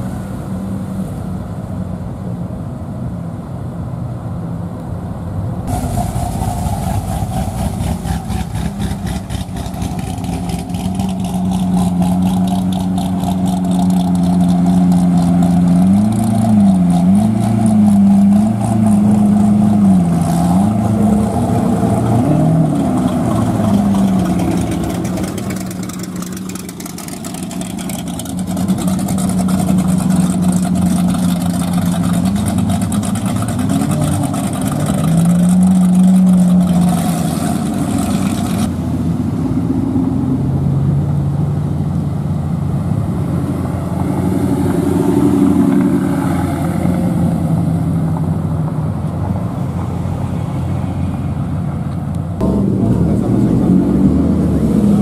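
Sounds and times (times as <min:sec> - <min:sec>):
engine throttle blips: 0:05.6 - 0:55.0
car engine idling: 0:05.7 - 0:16.3, 0:20.8 - 0:36.8.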